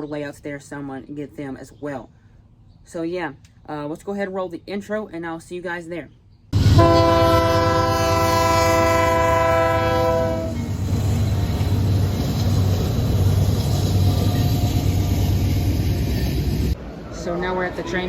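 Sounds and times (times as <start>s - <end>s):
train horn blast: 6.6s - 10.7s
moving train running noise: 6.6s - 18.0s.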